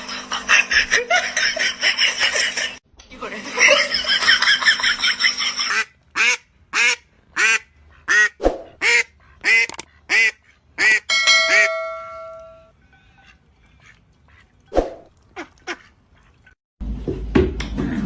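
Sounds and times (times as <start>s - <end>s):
steady ringing tone: 11.0s - 12.7s.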